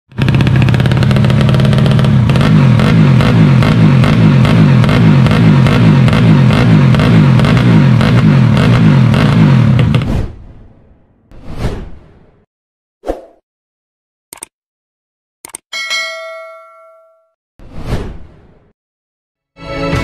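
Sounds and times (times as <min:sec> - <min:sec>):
motorcycle engine revving: 0:00.1 - 0:10.1.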